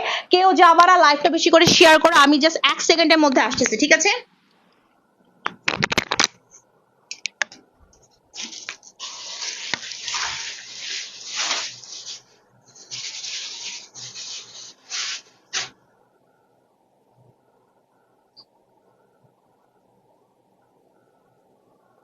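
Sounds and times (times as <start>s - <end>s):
cloth rustling and rubbing: 8.1s - 15.8s.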